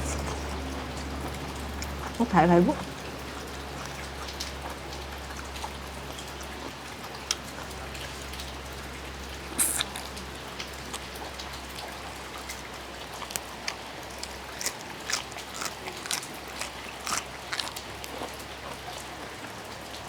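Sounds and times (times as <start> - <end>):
distant tractor engine drone: 0.0 - 4.1
steady rain: 0.0 - 15.4
raw vegetables being chewed: 0.0 - 20.0.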